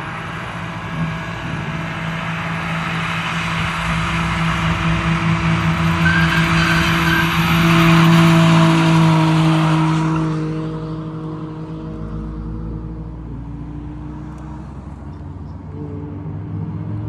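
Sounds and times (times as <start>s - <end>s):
car engine at high revs: 0.0s - 17.0s
tyre screech: 3.2s - 10.0s.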